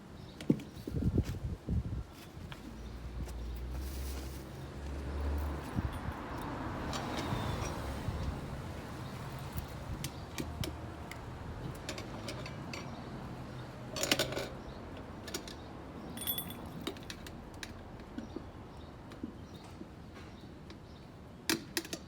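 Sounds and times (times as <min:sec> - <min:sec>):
metal tools clicking and clinking: 0:13.9 - 0:14.6, 0:15.2 - 0:17.3
tools rattling: 0:15.2 - 0:17.2
ringing metal clink: 0:16.2 - 0:16.8.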